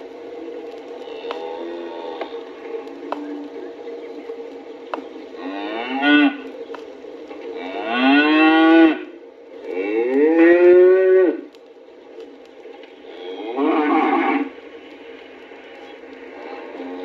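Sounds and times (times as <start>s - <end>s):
cattle mooing: 1.0s - 2.6s, 5.4s - 6.4s, 7.5s - 9.1s, 9.7s - 11.5s, 13.1s - 14.6s, 16.4s - 17.0s.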